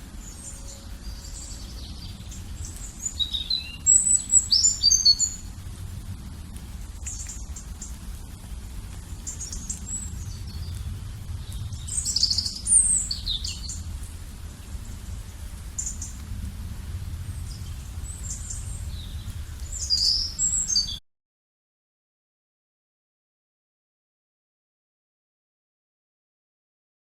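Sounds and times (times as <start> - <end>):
steady low rumble: 0.0 - 20.9
wild birds chirping: 0.0 - 21.0.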